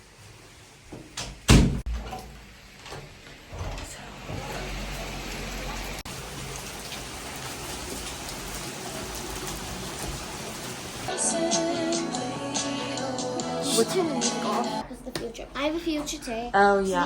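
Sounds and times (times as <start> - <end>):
steady rain falling: 4.4 - 11.1.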